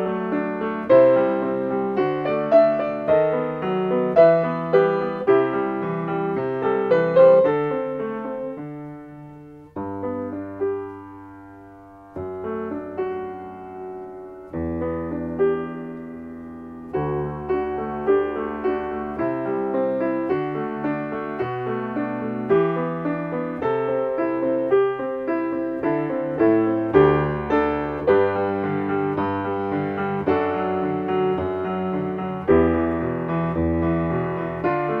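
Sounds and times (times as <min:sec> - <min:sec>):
solo piano: 0:00.0 - 0:35.0.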